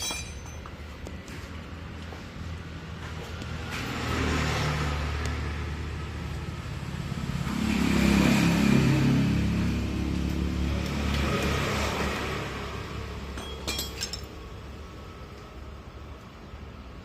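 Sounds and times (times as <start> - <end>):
car engine revving: 6.8 - 12.8.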